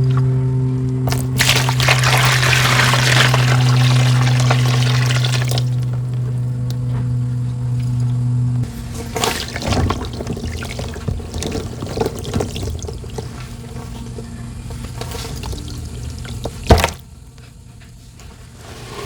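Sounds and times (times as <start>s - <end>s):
loud sharp splash: 1.1s - 5.8s
sand and water pouring into water: 1.1s - 6.2s, 9.0s - 13.2s.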